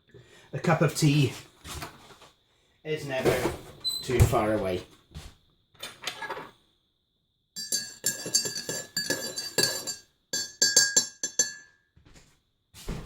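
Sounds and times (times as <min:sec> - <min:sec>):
teaspoon clinking against ceramic mug: 0:07.6 - 0:11.7.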